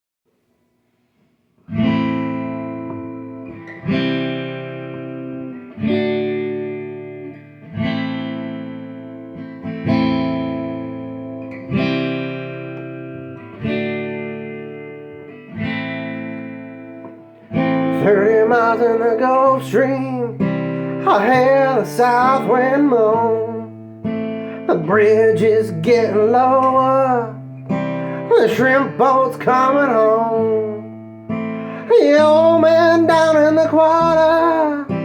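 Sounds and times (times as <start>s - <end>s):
guitar chords ringing: 1.6s - 35.0s.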